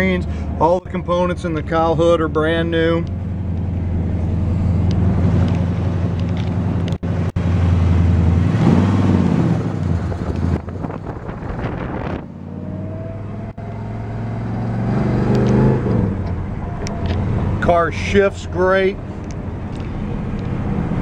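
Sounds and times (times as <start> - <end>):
car engine running under load: 0.0 - 21.0.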